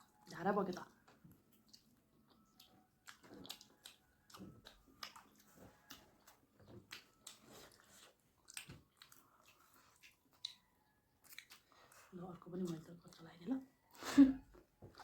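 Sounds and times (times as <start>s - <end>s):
chewing and mouth smacks: 0.0s - 15.0s.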